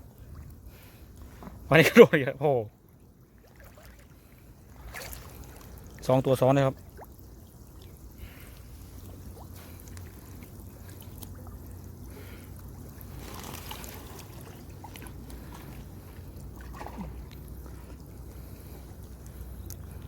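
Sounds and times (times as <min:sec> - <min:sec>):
low steady rumble: 0:00.0 - 0:20.0
water trickling and splashing: 0:00.0 - 0:20.0.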